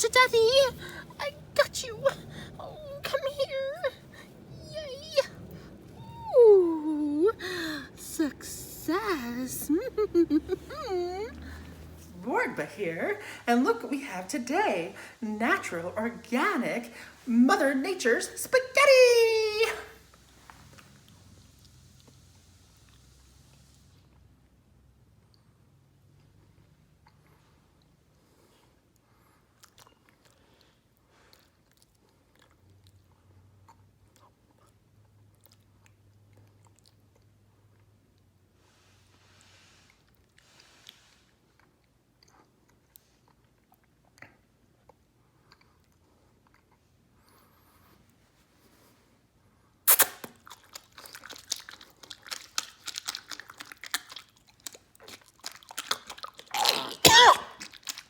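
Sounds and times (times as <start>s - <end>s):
faint low hum: 0.0s - 18.9s
person chewing: 29.6s - 30.4s, 44.8s - 46.8s, 49.9s - 58.0s.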